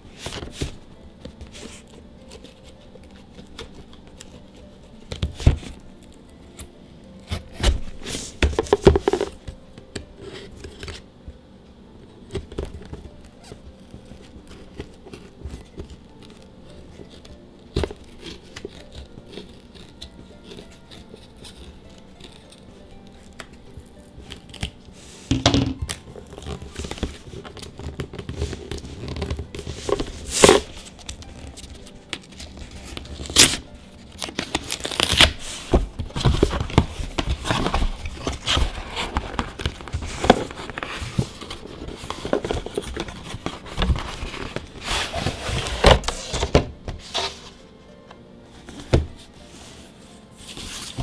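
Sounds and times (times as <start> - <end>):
foil wrapper crinkling: 12.3 - 48.0.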